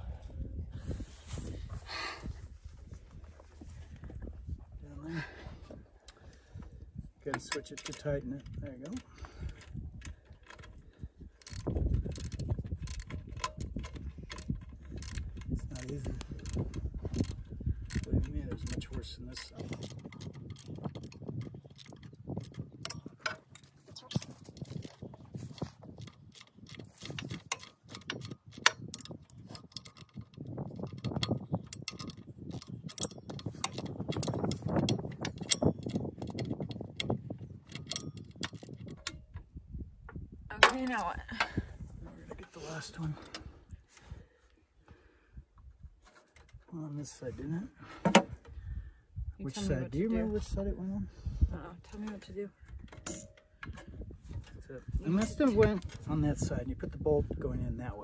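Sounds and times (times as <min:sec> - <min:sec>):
metal tools clattering: 0:07.4 - 0:09.1, 0:52.9 - 0:54.5
ratchet wrench clicking: 0:11.4 - 0:23.7
socket ratchet clicking: 0:11.4 - 0:23.7, 0:25.9 - 0:39.3.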